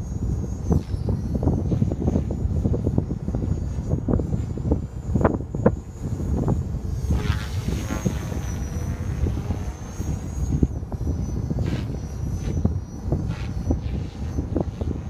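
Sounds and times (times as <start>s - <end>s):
rc helicopter motor whine: 0.0s - 15.0s
wind buffeting microphone: 0.0s - 15.0s.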